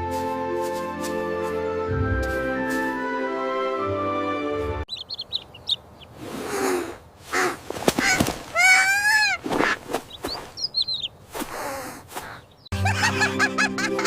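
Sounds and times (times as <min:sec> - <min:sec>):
background music: 0:00.0 - 0:04.9, 0:12.7 - 0:14.0
high bird chirps: 0:04.9 - 0:06.2, 0:10.1 - 0:11.2
rising and falling bird call: 0:04.9 - 0:12.7
breathy rustling noise: 0:06.1 - 0:08.6, 0:11.2 - 0:12.6.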